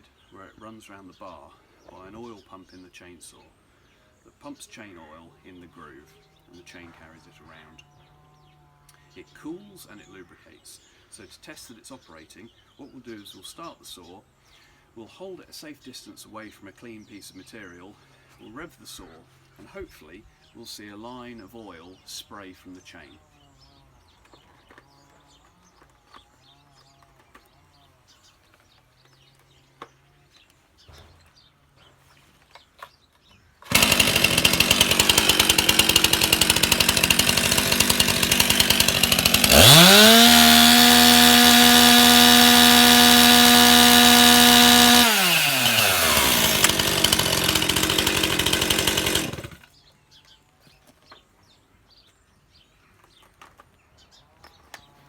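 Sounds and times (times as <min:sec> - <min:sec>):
two-stroke chainsaw idling and revving: 0:33.6 - 0:49.7.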